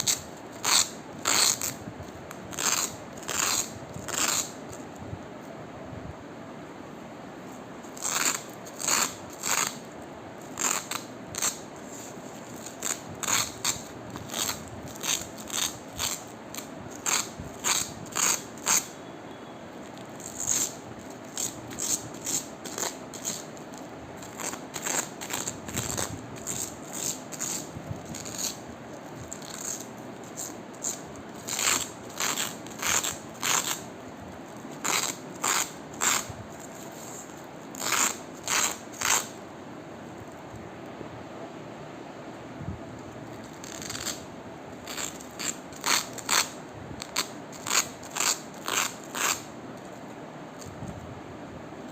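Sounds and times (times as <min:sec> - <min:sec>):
velcro ripping apart: 0:00.0 - 0:04.8, 0:07.9 - 0:19.0, 0:19.9 - 0:33.9, 0:34.5 - 0:39.4, 0:43.3 - 0:44.2, 0:44.8 - 0:49.5.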